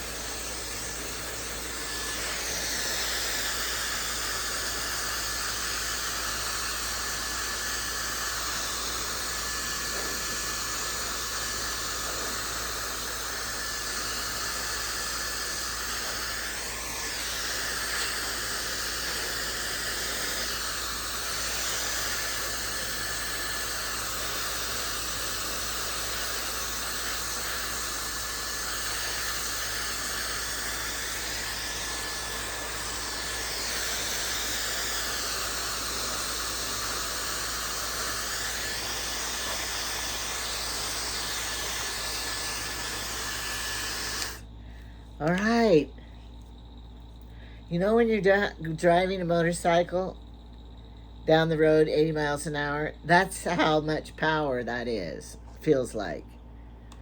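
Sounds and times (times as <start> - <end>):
hair dryer running: 0.0 - 44.6, 53.2 - 53.9.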